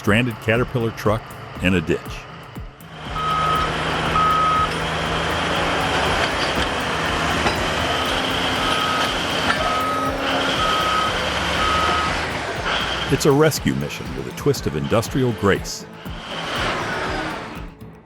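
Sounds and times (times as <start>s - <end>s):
diesel engine noise: 0.0s - 17.8s
reversing alarm beeping: 3.1s - 13.5s.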